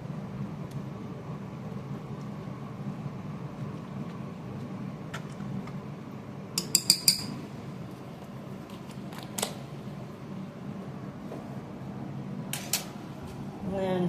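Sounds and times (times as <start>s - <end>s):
steady low hum: 0.0s - 14.0s
metal utensil clinking against pot: 6.6s - 7.4s.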